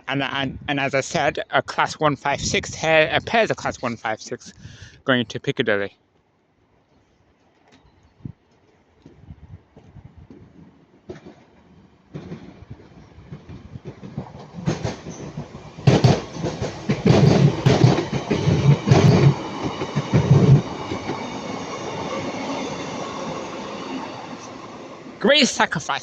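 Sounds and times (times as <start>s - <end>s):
train running hum: 8.4s - 26.0s
train wheels clattering over rail joints: 10.3s - 24.4s.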